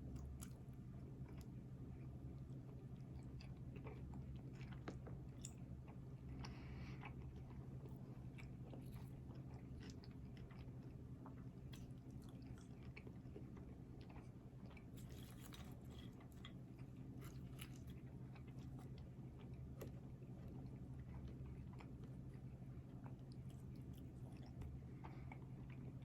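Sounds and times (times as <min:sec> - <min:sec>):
close-mic chewing: 0:00.0 - 0:26.0
steady low hum: 0:00.0 - 0:26.0.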